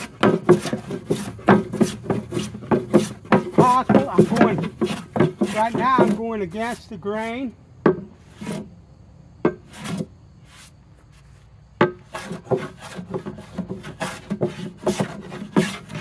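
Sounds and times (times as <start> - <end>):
hand plane shaving wood: 0.0 - 7.6, 8.2 - 8.7, 9.5 - 10.7, 11.8 - 16.0.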